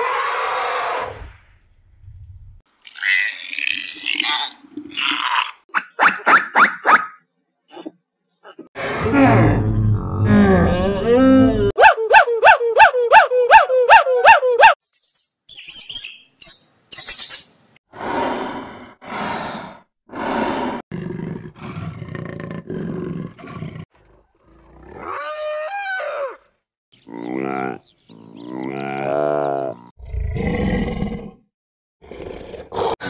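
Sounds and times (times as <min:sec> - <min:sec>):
high chirps: 0:14.8 - 0:17.8.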